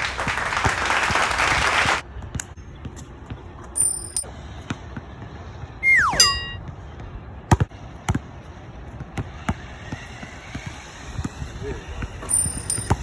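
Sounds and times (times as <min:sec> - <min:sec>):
falling whistle-like tone: 0:05.8 - 0:06.6
basketball bouncing on court: 0:07.5 - 0:08.3, 0:12.6 - 0:13.0.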